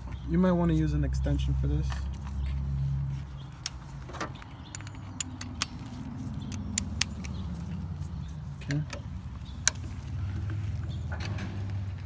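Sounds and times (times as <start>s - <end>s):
sharp ticks: 4.4s - 9.9s.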